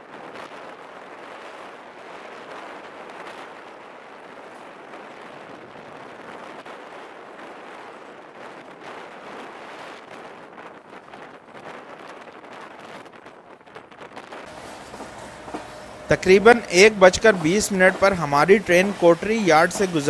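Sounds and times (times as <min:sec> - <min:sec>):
wind across microphone: 0:00.0 - 0:16.1
train wheel and rail noise: 0:14.4 - 0:20.0.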